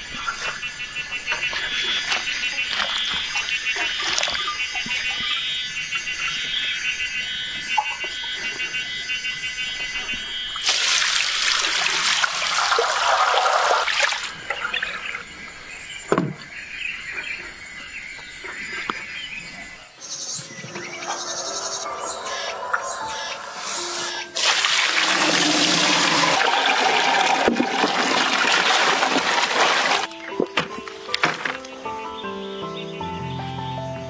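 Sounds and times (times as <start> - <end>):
water pouring in a loud rush: 10.6 - 14.4, 23.6 - 30.1
rapid high chirping: 20.0 - 26.4.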